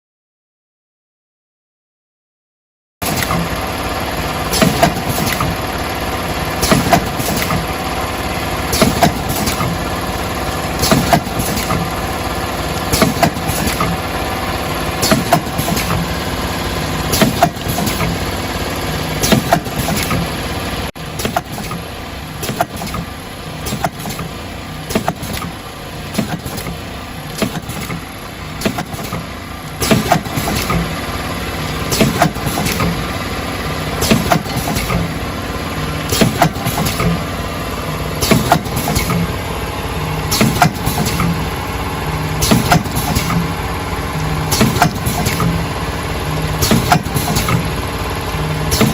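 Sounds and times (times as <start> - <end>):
steady mechanical hum: 3.0 - 48.9
packaging machine clacking: 4.5 - 5.7, 6.6 - 8.0, 8.6 - 10.1, 10.8 - 20.4, 21.0 - 35.3, 35.9 - 37.4, 38.2 - 39.4, 40.2 - 41.6, 42.4 - 45.8, 46.5 - 47.9, 48.6 - 48.9.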